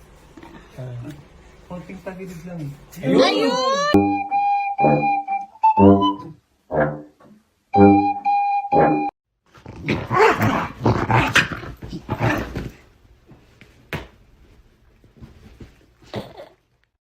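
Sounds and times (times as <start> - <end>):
dog growling: 9.6 - 12.8.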